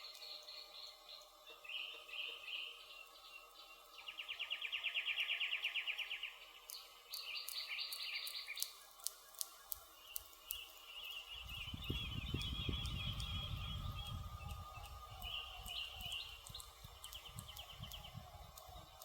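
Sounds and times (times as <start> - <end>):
woodland birds singing: 0.0 - 19.0
campfire crackling and popping: 6.7 - 19.0.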